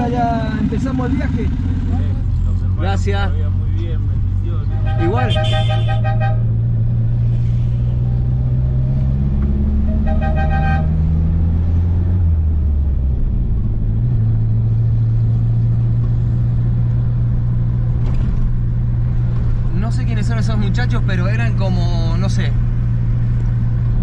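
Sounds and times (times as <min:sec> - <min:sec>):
car horn toot: 0:04.7 - 0:06.5, 0:09.9 - 0:11.0.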